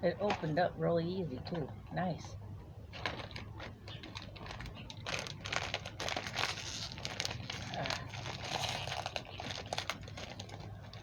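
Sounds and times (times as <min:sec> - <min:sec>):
plastic wrapper crinkling: 0:02.9 - 0:11.0.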